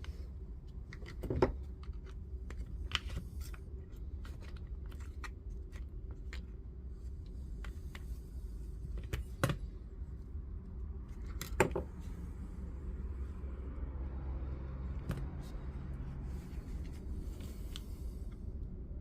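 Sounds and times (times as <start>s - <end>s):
low steady hum: 0.0s - 19.0s
plastic housing clicking and knocking: 0.9s - 3.2s, 11.2s - 11.9s.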